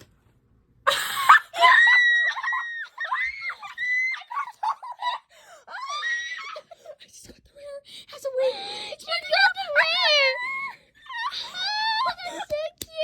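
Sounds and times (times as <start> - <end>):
girl screaming with excitement: 0.9 - 6.6.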